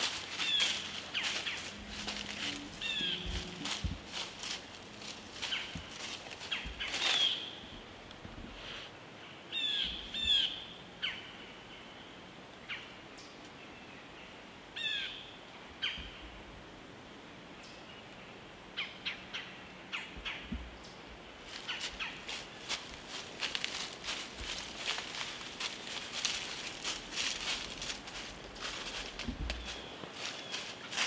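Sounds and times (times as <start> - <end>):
birds giving harsh calls: 0.0 - 7.8, 21.5 - 23.0
birds chipping: 0.0 - 8.0, 9.3 - 11.9, 18.8 - 31.0.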